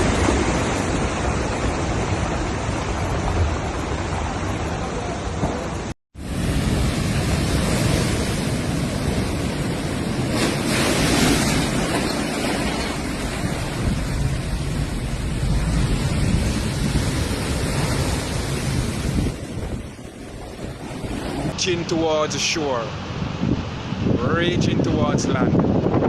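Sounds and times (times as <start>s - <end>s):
heavy surf pounding shore: 0.0s - 26.0s
wind rumbling on microphone: 0.0s - 26.0s.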